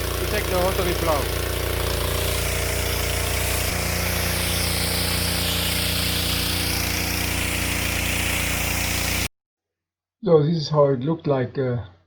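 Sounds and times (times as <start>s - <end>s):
tractor engine running: 0.0s - 9.3s.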